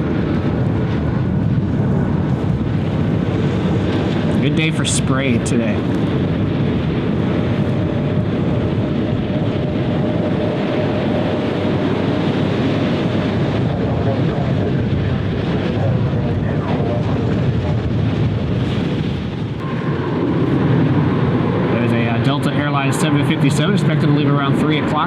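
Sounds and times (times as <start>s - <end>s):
jet airliner engines: 0.0s - 25.0s
wind on microphone: 0.0s - 25.0s.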